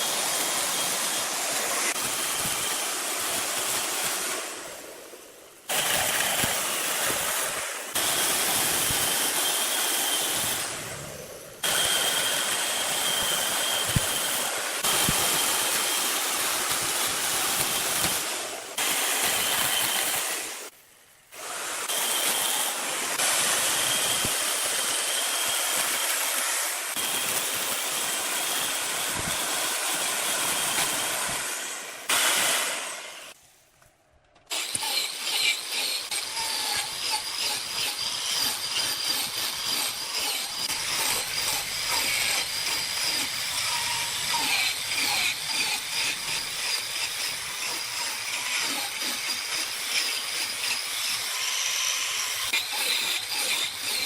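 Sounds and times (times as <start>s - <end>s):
lathe tool scraping spinning wood: 34.5s - 54.0s.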